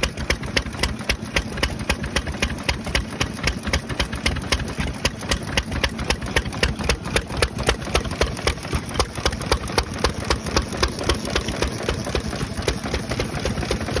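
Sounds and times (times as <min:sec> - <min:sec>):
stationary engine exhaust knocking: 0:00.0 - 0:14.0.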